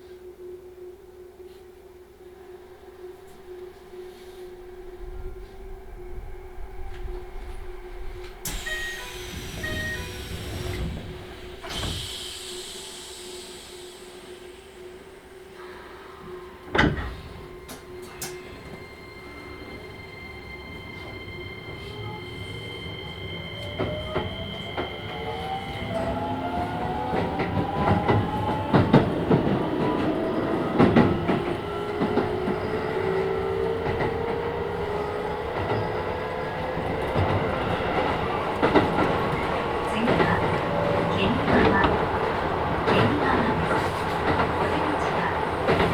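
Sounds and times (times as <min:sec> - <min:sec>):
electric train motor whine: 0:08.1 - 0:45.9
steady high tone: 0:08.5 - 0:11.5.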